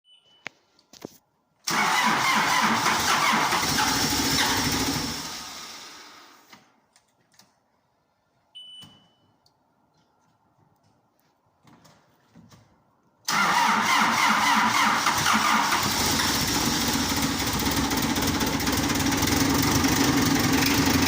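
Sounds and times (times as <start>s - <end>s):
short beep: 0.0s - 0.6s, 8.5s - 9.4s
diesel engine cranking: 1.7s - 6.0s, 13.3s - 21.0s.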